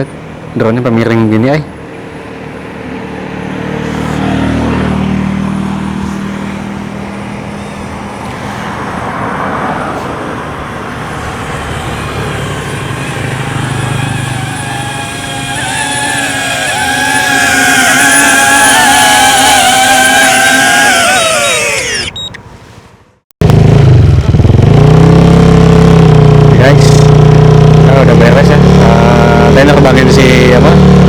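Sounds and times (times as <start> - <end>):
road traffic passing: 0.0 - 31.0
drone propeller whine: 11.0 - 22.2.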